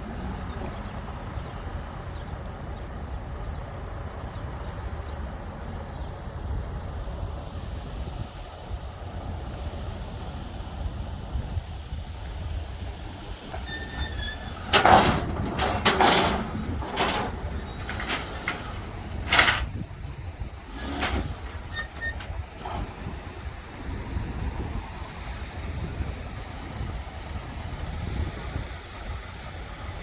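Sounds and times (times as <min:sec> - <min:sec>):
low engine rumble: 0:09.6 - 0:25.0
metal clanks and bangs: 0:13.4 - 0:23.1.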